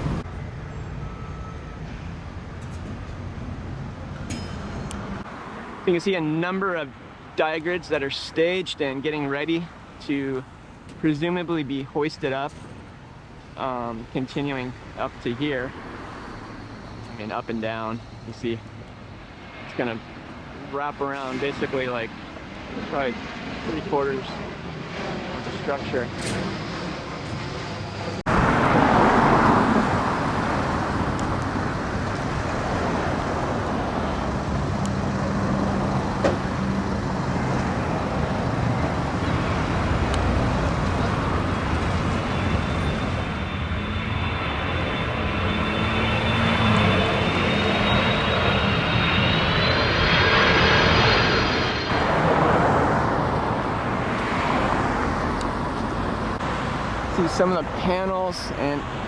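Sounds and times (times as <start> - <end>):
high turbine whine: 0.0 - 59.0
jet aircraft roaring overhead: 0.0 - 59.0
street traffic: 0.0 - 59.0.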